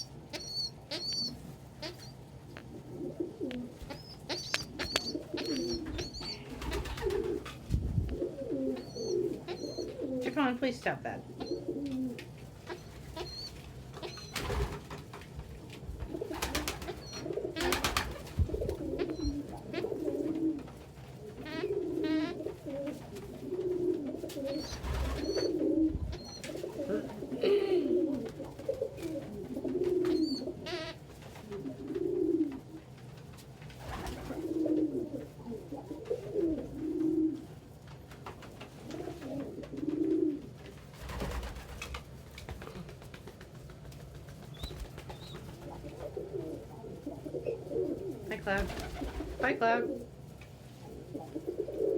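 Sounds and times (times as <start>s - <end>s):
pigeon clicks and chirps: 0.0s - 2.7s, 3.4s - 7.4s, 8.7s - 10.1s, 11.4s - 14.7s, 16.4s - 18.2s, 24.3s - 26.7s, 28.2s - 31.0s, 43.1s - 45.8s
pigeons cooing: 0.0s - 10.6s, 11.2s - 14.9s, 15.6s - 33.0s, 33.8s - 37.8s, 38.8s - 42.0s, 44.5s - 51.9s.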